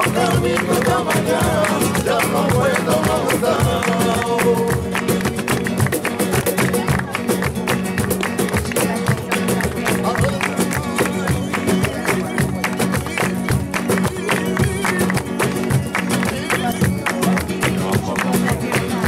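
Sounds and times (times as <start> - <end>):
acoustic guitar strummed fast: 0.0 - 19.0.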